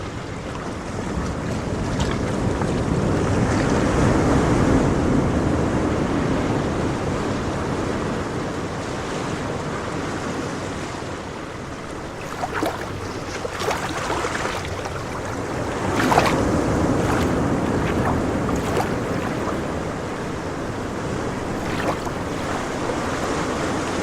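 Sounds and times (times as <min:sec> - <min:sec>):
wind noise: 0:11.6 - 0:24.0
sharp water splashes: 0:11.7 - 0:24.0
water washing: 0:11.8 - 0:24.0.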